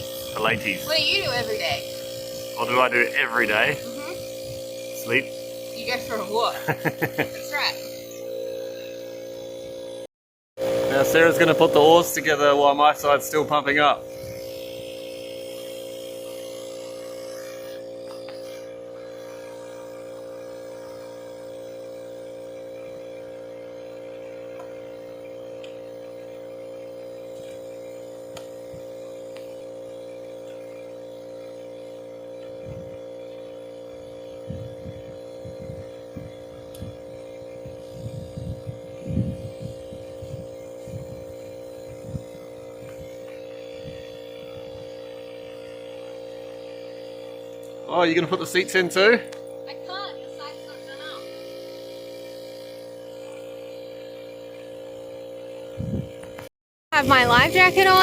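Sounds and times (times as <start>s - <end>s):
electric air compressor humming: 0.0s - 58.0s.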